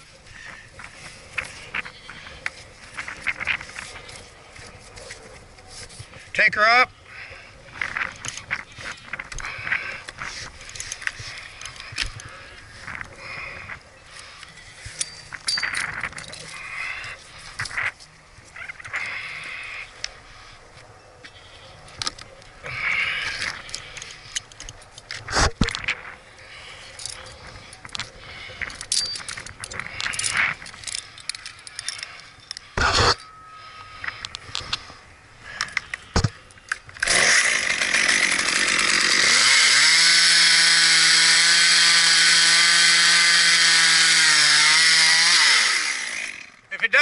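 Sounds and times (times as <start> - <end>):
chainsaw revving: 37.0 - 46.6.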